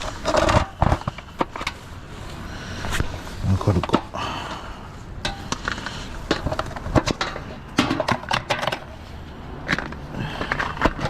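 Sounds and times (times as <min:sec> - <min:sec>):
parts and tools clicking and knocking: 0:00.0 - 0:01.8, 0:05.2 - 0:09.0, 0:09.6 - 0:11.0.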